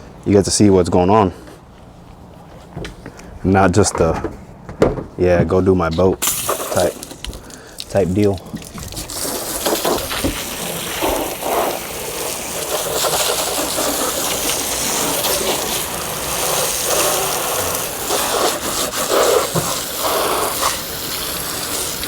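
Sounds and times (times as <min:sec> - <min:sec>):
hose water spraying and splashing: 0:06.2 - 0:22.0.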